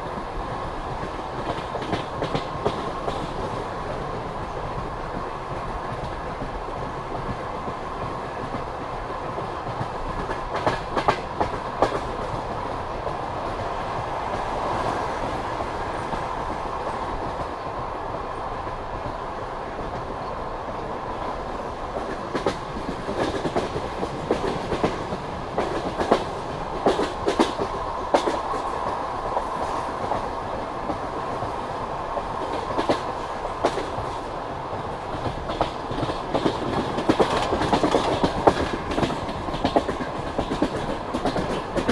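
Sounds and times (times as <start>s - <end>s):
train wheels rumbling: 0.0s - 41.9s
wheels clacking over rail joints: 22.0s - 31.6s, 35.1s - 41.9s.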